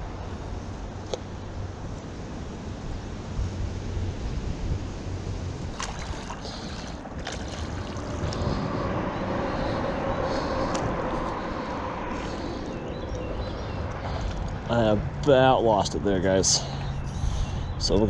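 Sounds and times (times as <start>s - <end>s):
wind on microphone: 0.0s - 15.2s
water sloshing around paddleboard: 5.7s - 8.6s.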